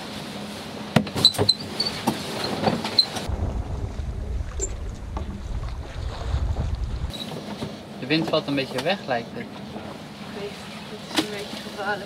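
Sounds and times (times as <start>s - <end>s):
wind rumbling on microphone: 3.0s - 7.2s.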